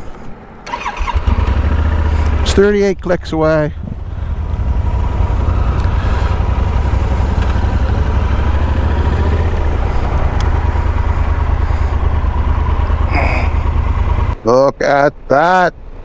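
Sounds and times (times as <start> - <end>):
motorcycle engine drone: 0.6 - 14.4
wind rumble on microphone: 3.8 - 12.3.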